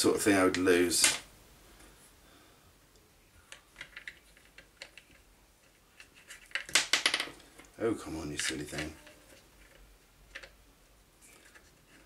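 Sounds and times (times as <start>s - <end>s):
small parts clicking and tapping: 2.9s - 7.8s, 8.4s - 10.6s.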